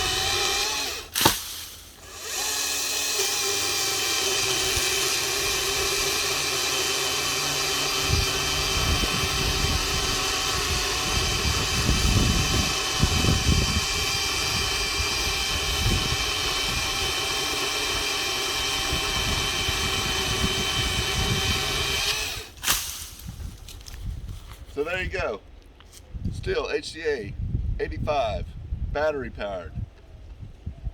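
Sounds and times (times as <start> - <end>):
electric pole saw cutting wood: 0.0 - 23.6.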